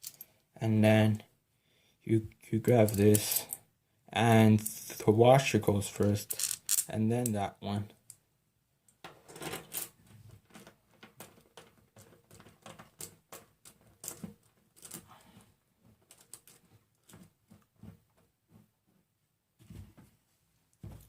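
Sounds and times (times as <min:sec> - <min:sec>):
small metal parts clicking: 0:00.0 - 0:00.3, 0:02.8 - 0:03.6, 0:06.2 - 0:07.4, 0:10.6 - 0:14.2, 0:14.8 - 0:15.1, 0:16.1 - 0:16.6.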